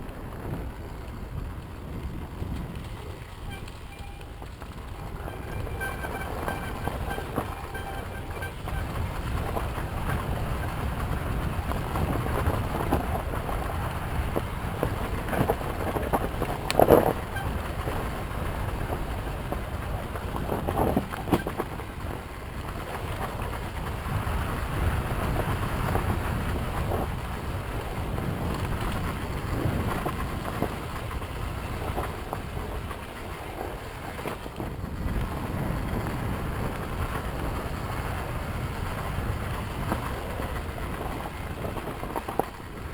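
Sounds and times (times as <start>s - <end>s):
wind buffeting microphone: 0.0s - 42.9s
dirt bike engine running: 0.1s - 34.2s.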